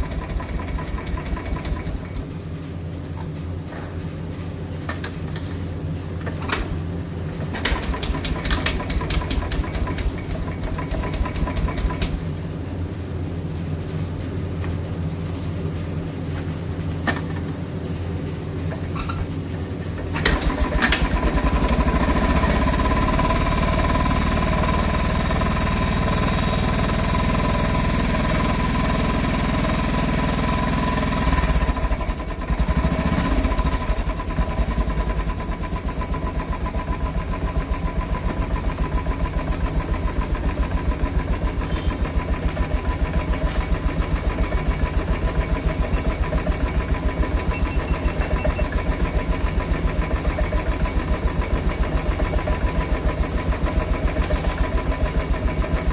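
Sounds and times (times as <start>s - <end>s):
motorcycle engine idling: 0.0s - 2.2s, 31.3s - 55.9s.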